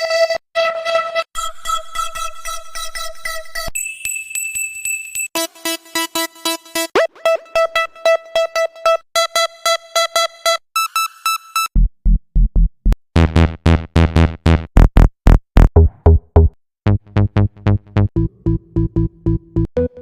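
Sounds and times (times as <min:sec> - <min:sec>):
repeated synth notes: 0:15.3 - 0:20.0.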